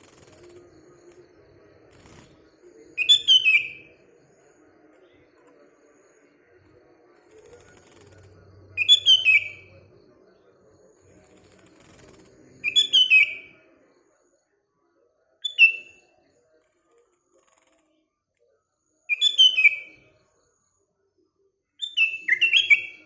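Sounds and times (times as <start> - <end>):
faint low hum: 0.0 - 19.2
bird singing whistled phrases: 3.0 - 3.9, 8.8 - 9.7, 12.6 - 13.5, 15.4 - 16.0, 19.1 - 20.0, 21.8 - 23.0.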